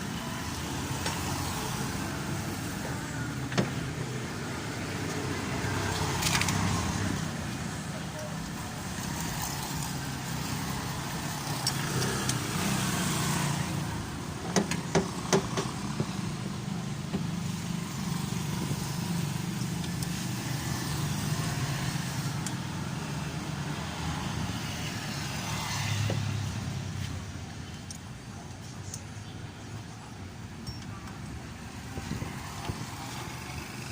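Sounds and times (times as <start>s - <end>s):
sharp metallic clinks: 30.6s - 31.3s.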